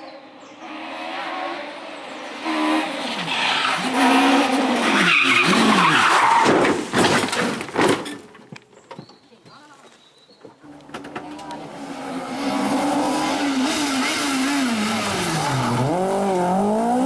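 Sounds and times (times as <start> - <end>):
rally car engine revving: 0.1 - 6.4, 10.7 - 17.0.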